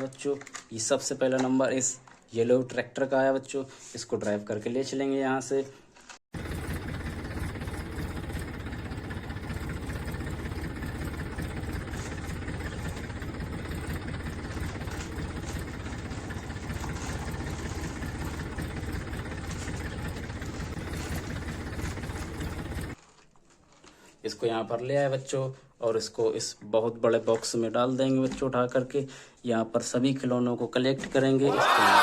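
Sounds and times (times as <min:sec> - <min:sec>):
tractor engine running: 0:06.3 - 0:23.0.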